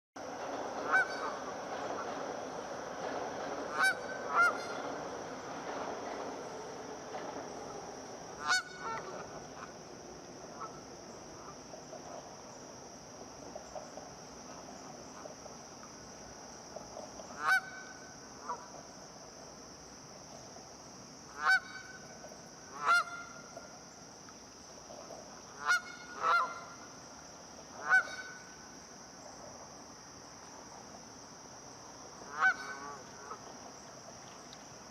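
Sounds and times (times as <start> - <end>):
geese honking: 0.8 - 2.1, 3.7 - 4.9, 8.4 - 9.7, 22.8 - 23.4, 25.6 - 26.7, 27.8 - 28.4, 32.3 - 33.4.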